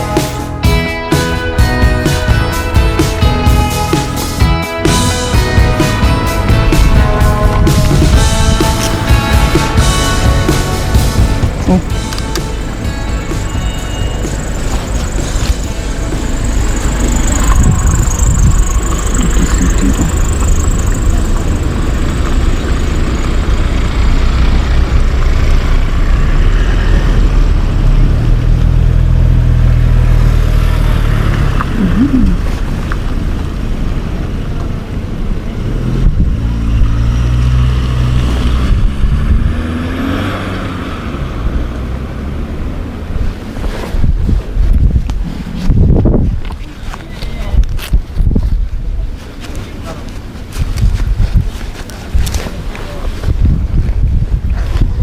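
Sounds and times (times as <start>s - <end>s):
motorcycle engine running: 0.0s - 34.8s
wind rush over microphone: 16.8s - 21.6s, 36.0s - 37.3s, 38.1s - 39.9s, 43.1s - 49.4s, 50.4s - 55.0s.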